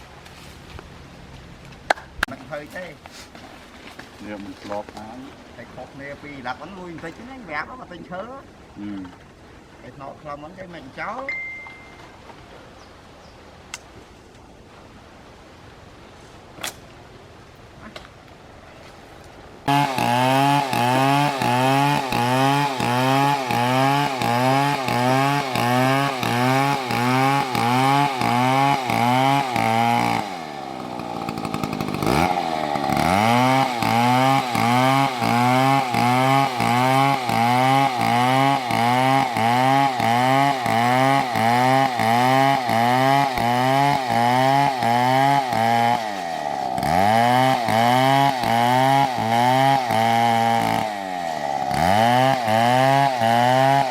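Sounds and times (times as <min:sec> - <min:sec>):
chainsaw cutting into tree: 0:19.6 - 0:53.9.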